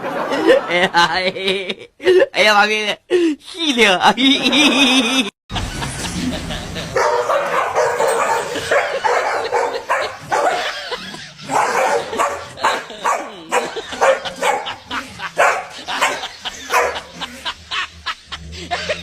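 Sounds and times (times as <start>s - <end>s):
dog barking: 7.0s - 10.8s, 11.5s - 14.8s, 15.4s - 17.1s.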